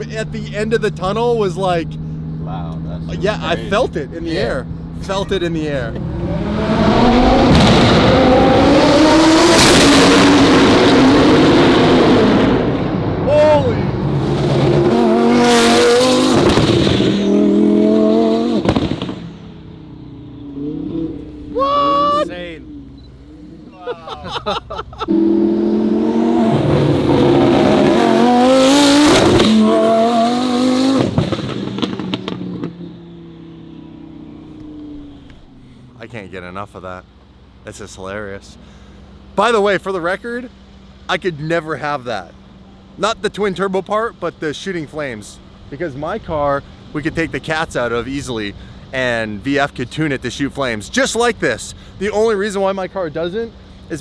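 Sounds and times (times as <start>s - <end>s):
car engine at high revs: 0.0s - 36.0s
exhaust pops and bangs: 7.4s - 8.6s, 16.2s - 17.2s, 18.6s - 19.4s, 31.0s - 32.7s.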